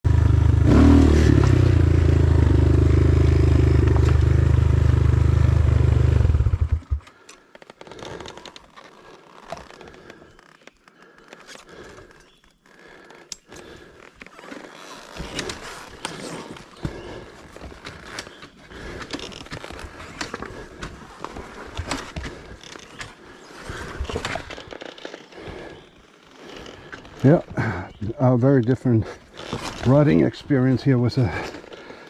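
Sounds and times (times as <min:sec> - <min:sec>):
dirt bike engine running: 0:00.1 - 0:07.2
faint clicks and scrapes: 0:07.0 - 0:27.3.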